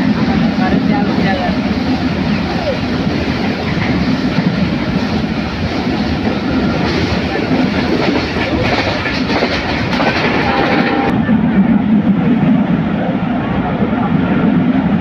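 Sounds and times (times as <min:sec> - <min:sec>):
train wheels rumbling on rails: 0:00.0 - 0:15.0
train wheel clicks: 0:06.2 - 0:11.1.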